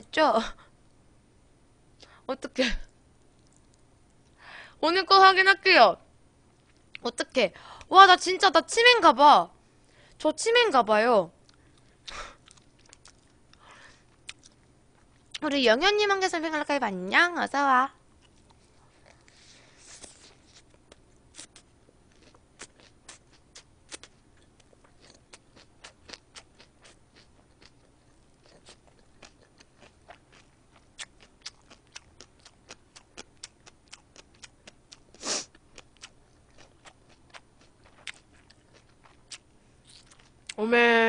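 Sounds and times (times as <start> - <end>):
chewing crunchy food: 11.4 - 15.4, 18.1 - 40.6
wet mouth clicks and crunches: 20.0 - 40.6.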